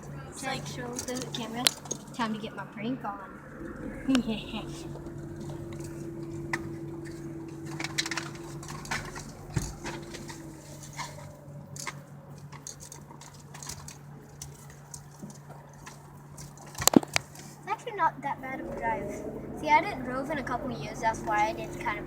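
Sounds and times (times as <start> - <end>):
second engine tone: 0.0 - 11.7, 18.0 - 22.0
car engine hum: 0.0 - 22.0
small clicks and knocks: 5.0 - 17.6.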